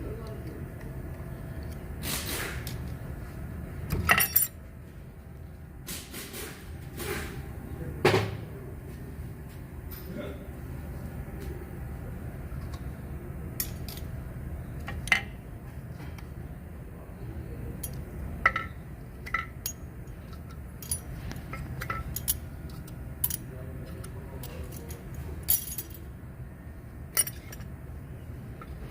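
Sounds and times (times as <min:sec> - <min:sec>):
low steady hum: 0:00.0 - 0:28.9
metal tools clinking and clanking: 0:03.9 - 0:04.6, 0:17.8 - 0:26.1, 0:27.2 - 0:27.7.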